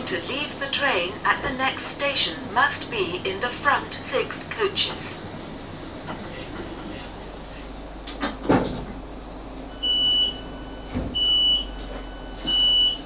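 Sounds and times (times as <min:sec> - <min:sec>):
low hum of stopped train: 0:00.0 - 0:13.0
clunk: 0:08.1 - 0:09.0, 0:10.8 - 0:12.7
train door warning beeps: 0:09.5 - 0:13.0.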